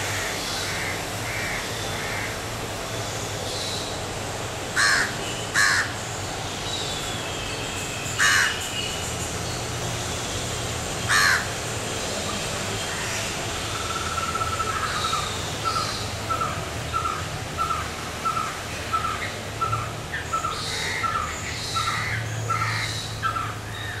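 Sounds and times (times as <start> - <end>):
outdoor background noise: 0.0 - 24.0
bird harsh calls: 4.8 - 9.4, 11.0 - 24.0.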